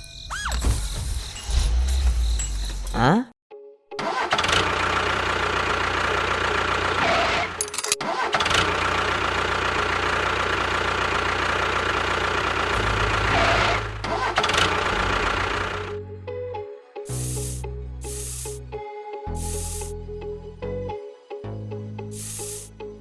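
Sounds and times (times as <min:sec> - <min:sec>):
small engine running: 0:04.0 - 0:16.0, 0:17.1 - 0:18.6, 0:19.3 - 0:19.9, 0:22.1 - 0:22.7.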